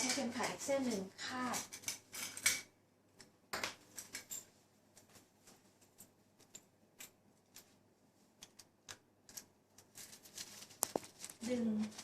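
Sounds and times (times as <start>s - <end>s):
cloth rustling: 9.8s - 12.0s.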